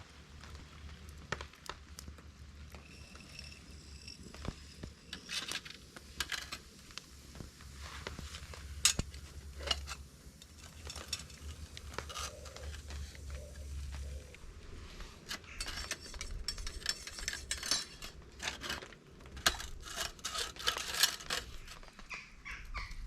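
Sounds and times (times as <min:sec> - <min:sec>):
metal cookware clinking and scraping: 0:05.0 - 0:06.7, 0:08.8 - 0:14.2, 0:15.2 - 0:21.8.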